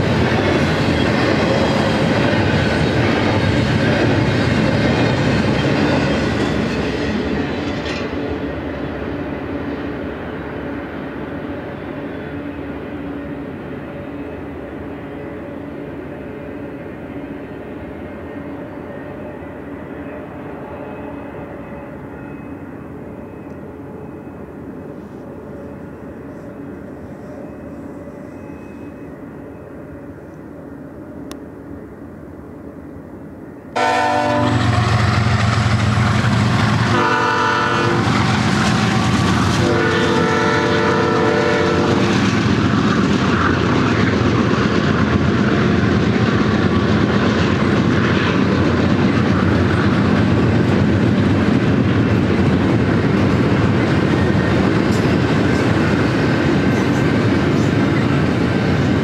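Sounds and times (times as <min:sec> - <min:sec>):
distant freight train rumble: 0:00.0 - 0:59.0
locomotive horn blasts: 0:33.8 - 0:35.0, 0:36.9 - 0:38.1, 0:39.6 - 0:42.0.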